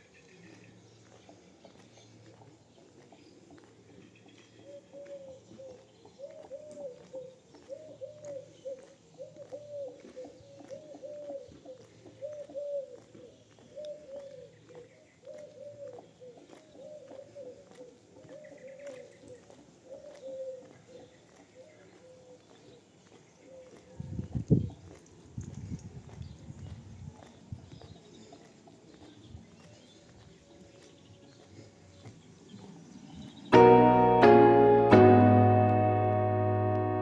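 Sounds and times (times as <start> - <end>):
dove cooing: 4.6 - 14.6, 15.2 - 22.5.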